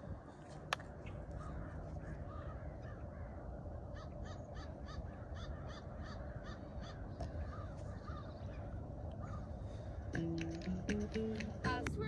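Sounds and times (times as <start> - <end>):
low steady rumble: 0.0 - 12.0
birds cawing: 1.1 - 10.3.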